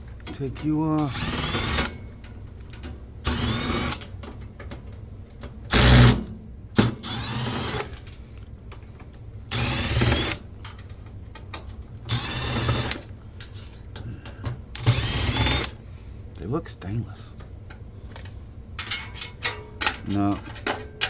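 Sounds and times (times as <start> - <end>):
power drill motor: 1.0 - 2.0, 3.2 - 4.1, 5.7 - 6.2, 6.8 - 8.0, 9.5 - 10.4, 12.1 - 13.1, 14.8 - 15.8.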